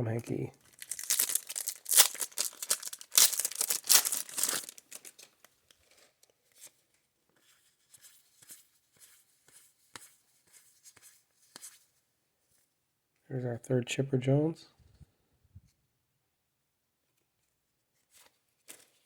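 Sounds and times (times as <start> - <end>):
plastic wrapper tearing and crinkling: 0.6 - 5.5.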